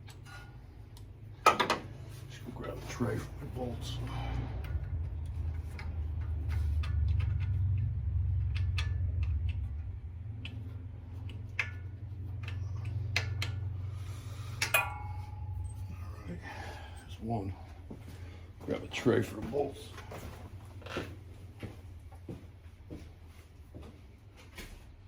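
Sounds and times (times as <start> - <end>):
steady low hum: 0.0 - 25.0
wrench clinking on metal: 14.6 - 16.0.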